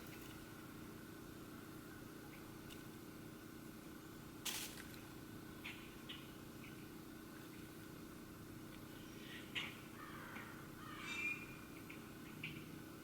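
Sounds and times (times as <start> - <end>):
faint steady hum: 0.0 - 13.0
birds calling: 8.9 - 12.8.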